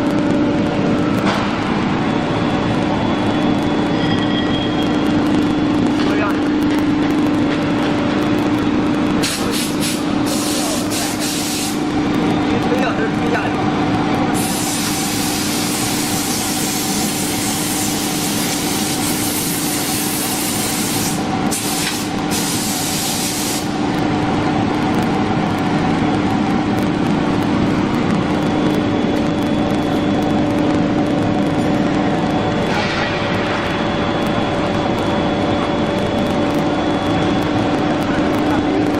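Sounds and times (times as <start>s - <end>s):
loud hiss: 9.2s - 11.9s, 14.3s - 23.8s.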